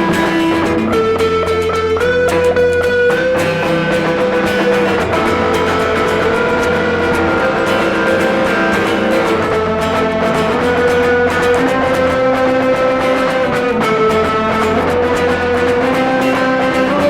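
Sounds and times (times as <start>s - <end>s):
bass guitar: 0.0s - 17.0s
electric guitars sustained notes: 0.0s - 17.0s.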